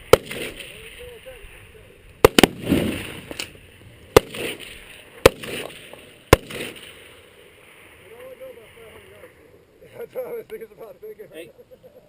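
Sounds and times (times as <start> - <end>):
shotgun shots: 0.0 - 0.8, 2.2 - 7.3
exploding targets: 0.0 - 1.0, 2.2 - 7.2.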